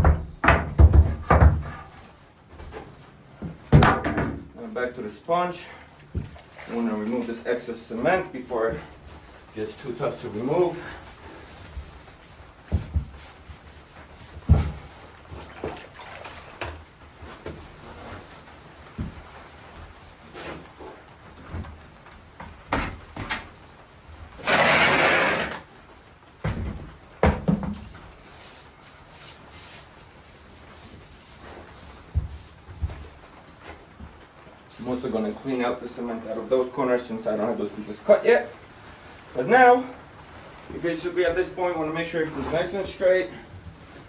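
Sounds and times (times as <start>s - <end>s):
wet sponge wiping floor tiles: 6.6s - 15.8s, 17.2s - 21.1s, 24.4s - 25.6s, 27.9s - 33.8s.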